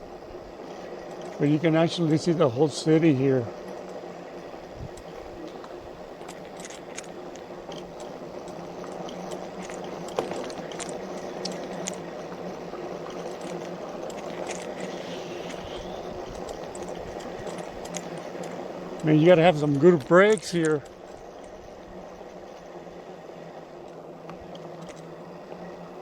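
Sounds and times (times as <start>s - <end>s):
tyres rolling on dirt road: 0.0s - 26.0s
stones clicking and popping: 4.9s - 12.1s, 13.1s - 19.1s.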